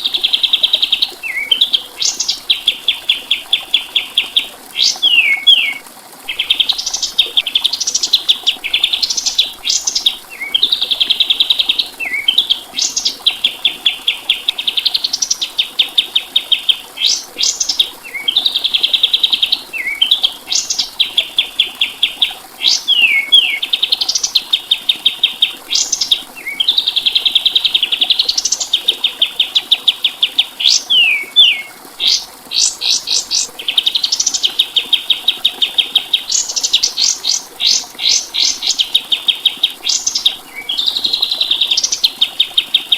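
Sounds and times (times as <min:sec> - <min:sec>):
songbird trilling and whistling: 0:04.8 - 0:08.1, 0:22.6 - 0:24.4, 0:30.0 - 0:35.4, 0:36.2 - 0:42.7.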